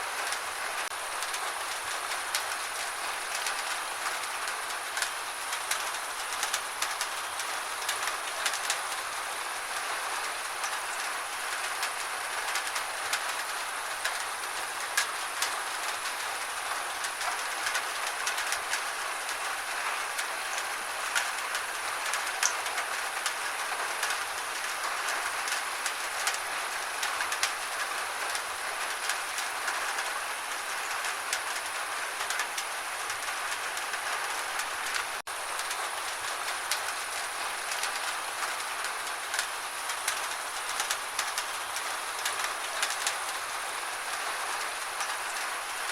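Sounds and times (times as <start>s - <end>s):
gentle rain falling: 0.0s - 45.9s.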